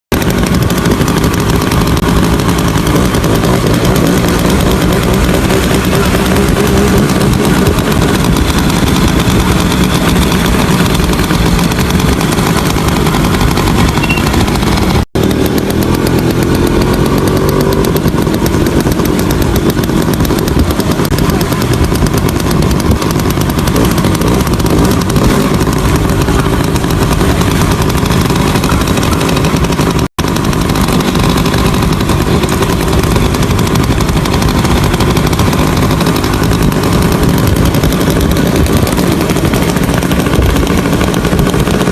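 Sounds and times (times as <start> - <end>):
motorcycle engine running: 0.1 - 41.9.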